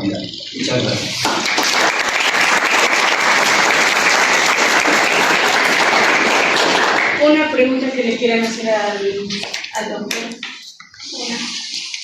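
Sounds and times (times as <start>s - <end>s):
audience applauding: 1.2s - 7.2s.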